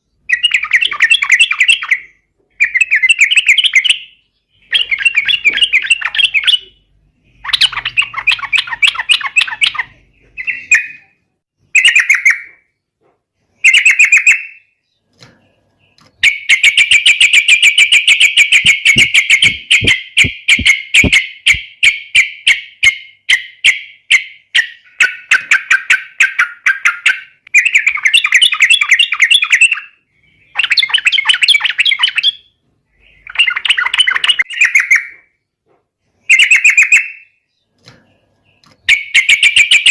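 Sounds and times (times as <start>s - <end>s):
bird singing bubbly phrases: 0.2s - 12.5s, 15.8s - 22.0s, 24.5s - 35.2s
rapid run of sharp bird notes: 18.4s - 21.6s.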